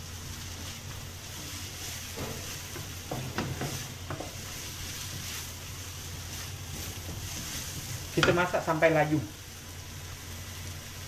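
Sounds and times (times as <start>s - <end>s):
vegetables sizzling in oil: 0.0s - 11.0s
wooden spatula scraping a pan: 0.1s - 8.7s.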